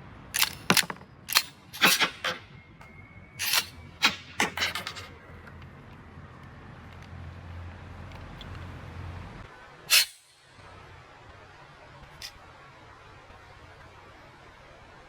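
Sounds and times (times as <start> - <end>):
pistol parts clicking and clacking: 0.4 - 2.4, 3.4 - 5.1.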